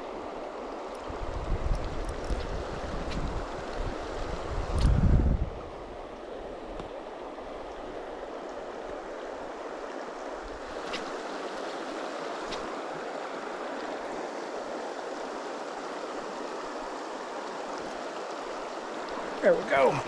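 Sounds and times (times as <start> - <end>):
stream rushing over riffle: 6.2 - 20.0.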